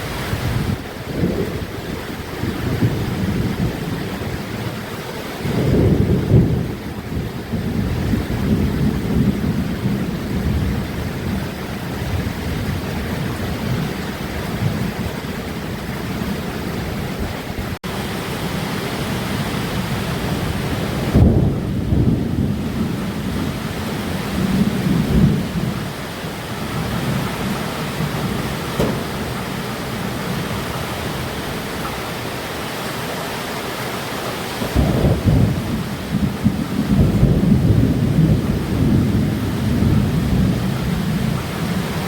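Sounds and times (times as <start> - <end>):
thunder rumbling: 0.0 - 32.6, 34.5 - 42.0
heavy rain: 0.0 - 42.0.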